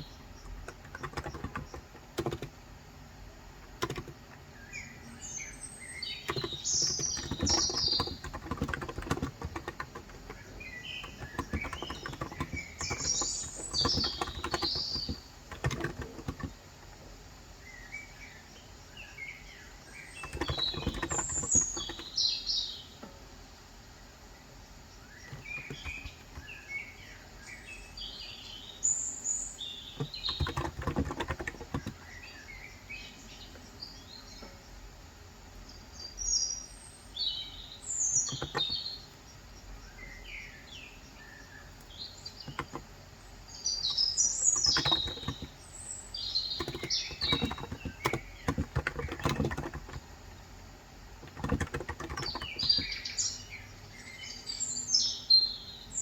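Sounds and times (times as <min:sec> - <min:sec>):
small birds chirping: 0:00.0 - 0:56.0
keyboard typing clicks: 0:00.5 - 0:02.6, 0:03.7 - 0:04.4, 0:06.2 - 0:16.6, 0:20.2 - 0:22.2, 0:25.3 - 0:26.5, 0:30.0 - 0:32.0, 0:38.2 - 0:38.8, 0:41.8 - 0:42.9, 0:44.6 - 0:45.6, 0:46.4 - 0:50.1, 0:51.2 - 0:53.0.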